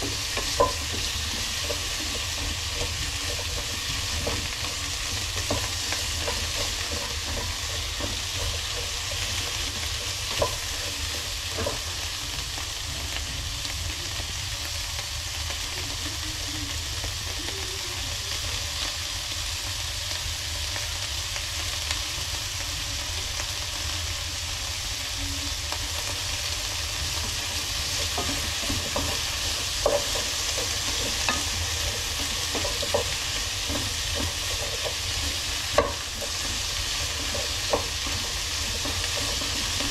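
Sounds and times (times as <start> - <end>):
utensil tapping a pan: 0.0 - 13.8, 25.7 - 39.9
vegetables sizzling in a pan: 0.0 - 39.9.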